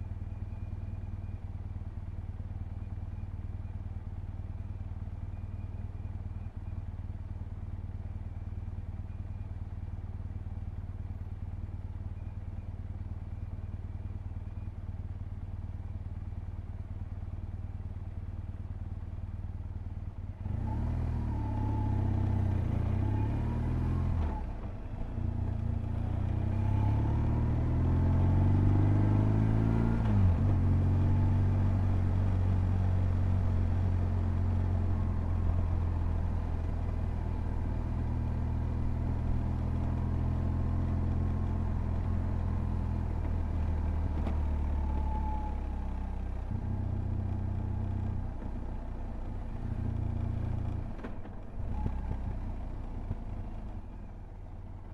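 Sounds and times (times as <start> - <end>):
motorcycle engine revving: 25.4 - 35.6.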